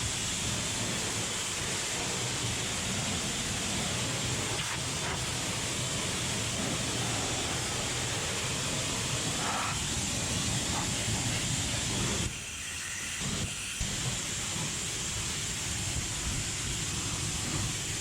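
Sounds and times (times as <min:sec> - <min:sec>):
low machine rumble: 0:00.0 - 0:12.2
pressure washer spraying: 0:00.0 - 0:12.6.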